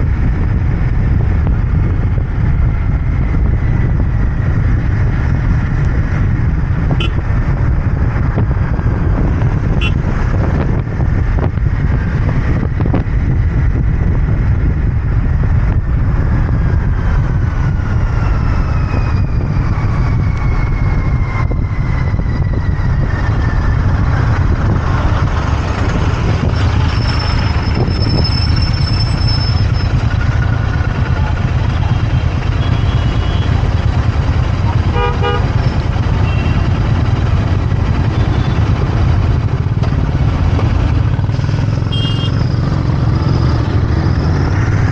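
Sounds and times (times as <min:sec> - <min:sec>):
motorcycle engine running: 0:00.0 - 0:18.6, 0:21.6 - 0:44.9
road traffic: 0:00.0 - 0:44.9
vehicle horn honking: 0:07.0 - 0:07.2, 0:09.8 - 0:10.0, 0:32.6 - 0:33.5, 0:34.9 - 0:35.5, 0:36.2 - 0:36.7, 0:41.8 - 0:42.4.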